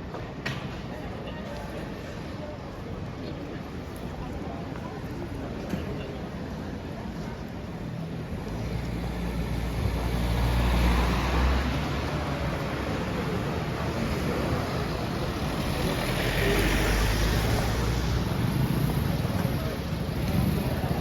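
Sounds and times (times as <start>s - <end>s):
vehicle engine rumble: 6.3s - 21.0s.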